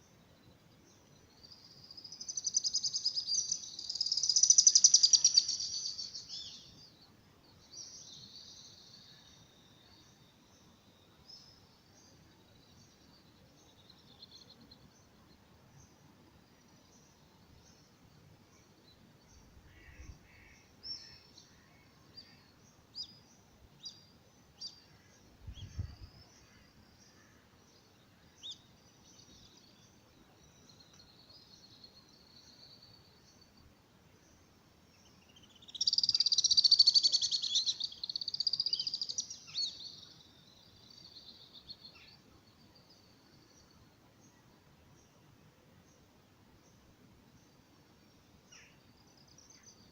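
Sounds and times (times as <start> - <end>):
birds chirping and singing: 1.4 - 6.8, 35.4 - 40.1.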